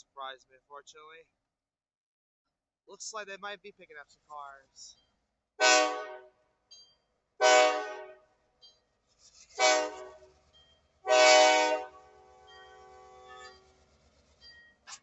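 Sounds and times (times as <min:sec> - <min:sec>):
locomotive air horn blasts: 0:05.6 - 0:06.3, 0:07.4 - 0:08.3, 0:09.6 - 0:10.3, 0:11.0 - 0:13.6.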